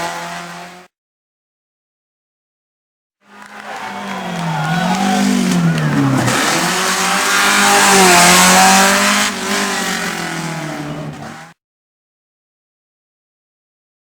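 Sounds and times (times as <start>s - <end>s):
rally car engine revving: 0.0s - 0.9s, 3.3s - 11.6s.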